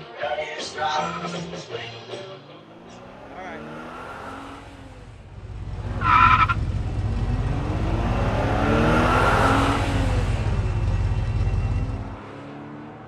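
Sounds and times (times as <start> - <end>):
car engine running and revving: 2.7 - 13.0.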